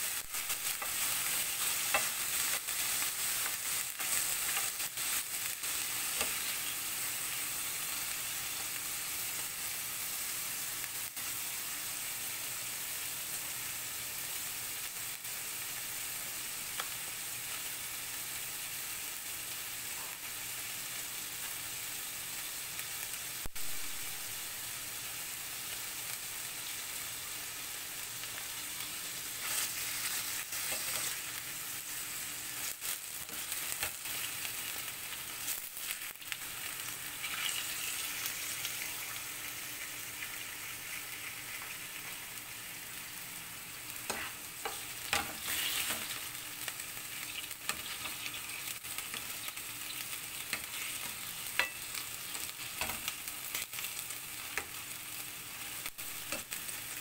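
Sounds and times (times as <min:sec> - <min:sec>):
livers sizzling in oil: 0:00.0 - 0:57.0
spatula stirring in pan: 0:29.3 - 0:31.3, 0:44.0 - 0:46.3, 0:47.1 - 0:53.5.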